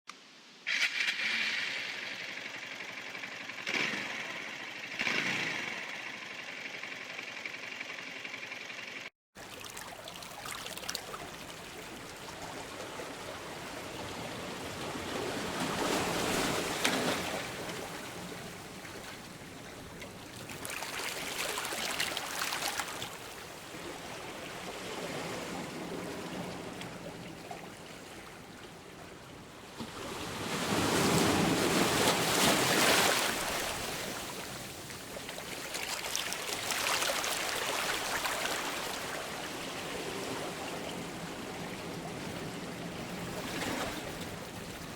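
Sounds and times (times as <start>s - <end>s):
waves breaking on shore: 9.4s - 44.9s.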